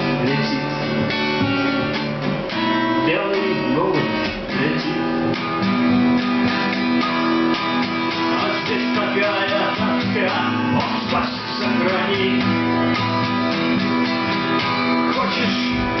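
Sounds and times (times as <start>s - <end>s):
person singing: 0.0s - 1.2s, 3.0s - 5.4s, 8.1s - 12.9s, 14.9s - 16.0s
acoustic guitars strumming: 0.0s - 16.0s.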